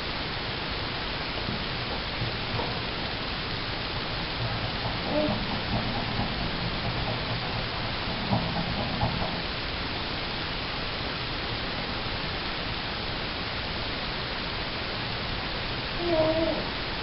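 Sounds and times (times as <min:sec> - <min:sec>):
two-tone hum: 0:00.0 - 0:14.8
steady hiss: 0:00.0 - 0:17.0.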